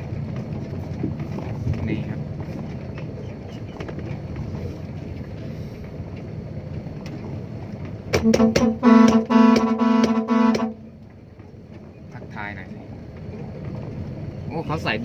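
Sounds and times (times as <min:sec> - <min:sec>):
truck engine and road noise: 0:00.0 - 0:15.0
vehicle horn blasts: 0:08.2 - 0:10.9.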